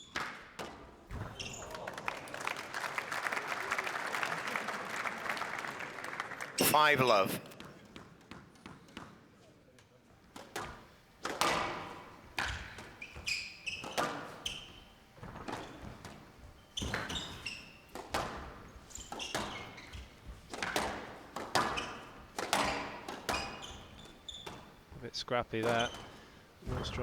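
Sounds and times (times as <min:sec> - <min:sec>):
squash ball hitting rackets and walls: 0:00.0 - 0:01.7, 0:10.2 - 0:27.0
shoes squeaking on court floor: 0:00.0 - 0:01.8, 0:06.6 - 0:27.0.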